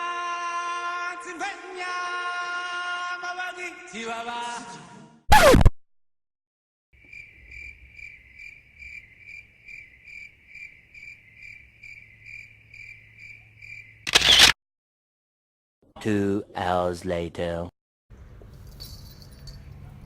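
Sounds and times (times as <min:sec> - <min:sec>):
short loud noise: 0:05.3 - 0:05.7
crickets chirping: 0:07.0 - 0:14.1.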